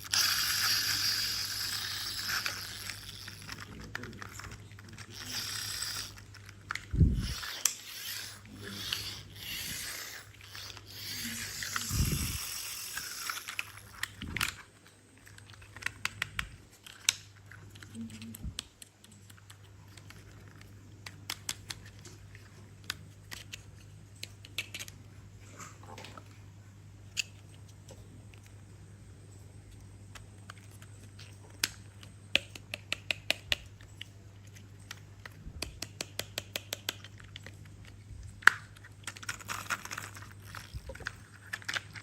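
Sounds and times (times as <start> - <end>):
sharp plastic clicks: 0.0 - 22.2, 30.1 - 42.0
plastic toys rustling and crinkling: 0.0 - 26.4, 29.6 - 32.4, 36.9 - 42.0.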